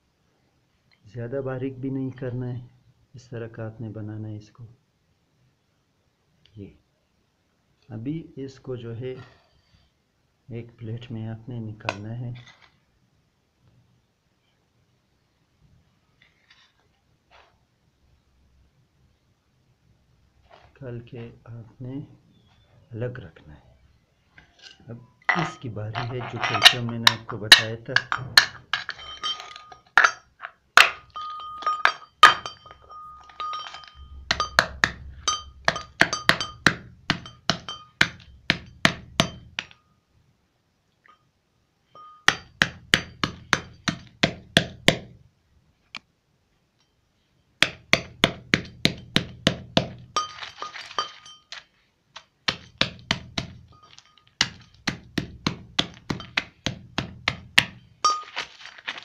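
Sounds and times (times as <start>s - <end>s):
metallic hand pounding: 26.6s - 39.8s, 42.0s - 45.2s, 47.6s - 51.5s, 52.4s - 58.3s.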